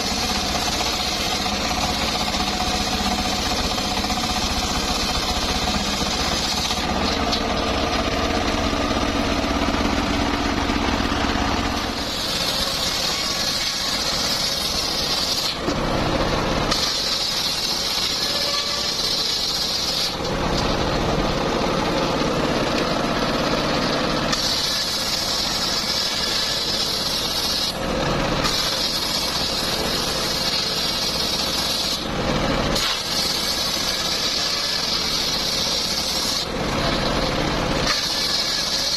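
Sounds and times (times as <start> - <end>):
circular saw blade ripping wood: 0.0 - 9.5, 10.5 - 20.8, 22.7 - 38.9
saw engine spinning: 0.0 - 38.9.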